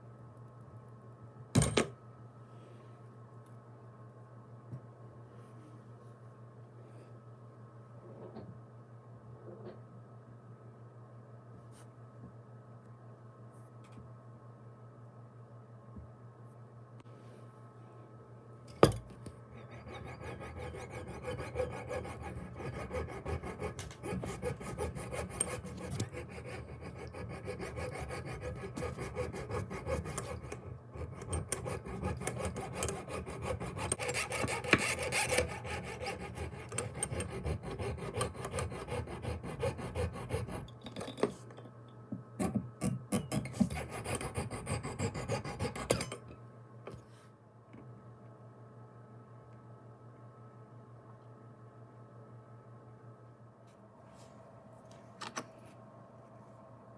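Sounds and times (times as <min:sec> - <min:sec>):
hand filing or sanding: 0:19.8 - 0:40.7.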